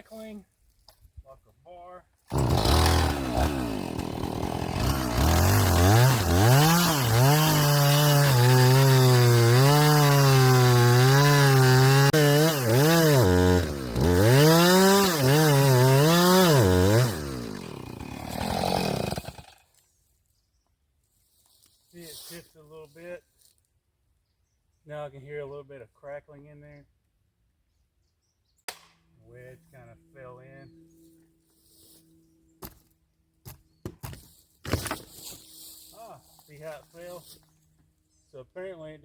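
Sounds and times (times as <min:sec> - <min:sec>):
chainsaw cutting wood: 0:02.3 - 0:19.7, 0:33.4 - 0:35.8.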